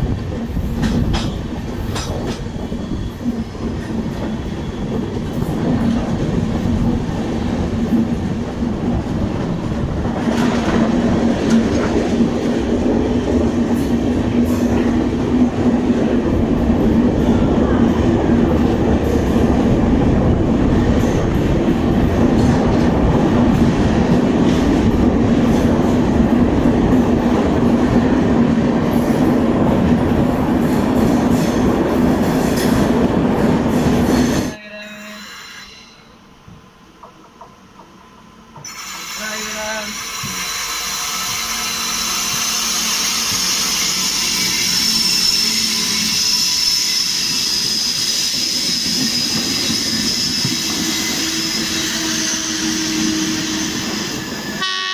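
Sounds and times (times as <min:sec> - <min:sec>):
constant train hum: 0:00.0 - 0:54.9
train wheels rumbling on rail: 0:00.0 - 0:54.9.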